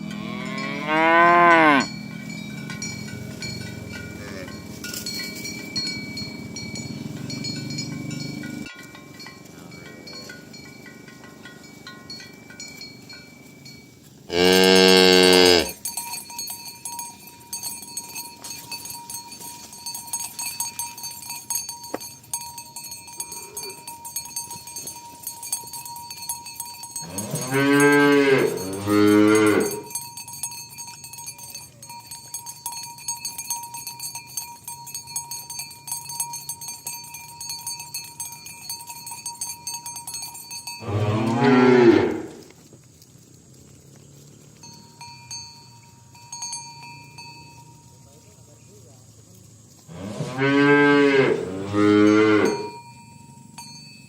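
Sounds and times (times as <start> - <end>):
cows mooing: 0.0 - 5.1, 14.3 - 15.8, 23.2 - 23.9, 27.0 - 30.0, 40.8 - 42.5, 49.9 - 52.7.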